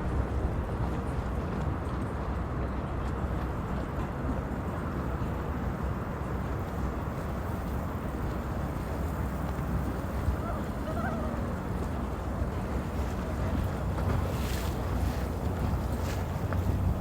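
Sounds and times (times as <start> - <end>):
boat engines rumbling: 0.0 - 17.0
water: 0.0 - 17.0
faint voices: 10.2 - 15.8.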